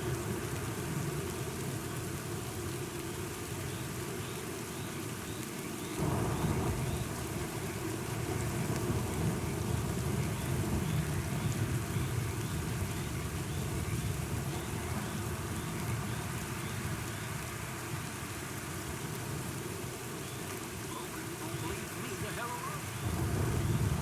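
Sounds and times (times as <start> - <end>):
steady rain: 0.0 - 24.0
thunder rumbling: 6.0 - 24.0.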